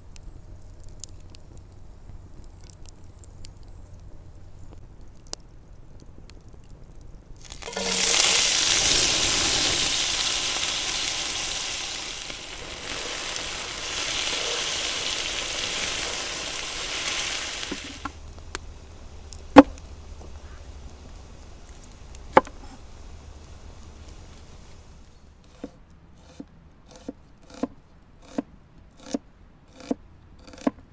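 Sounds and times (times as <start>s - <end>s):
food sizzling in hot oil: 7.4s - 25.4s.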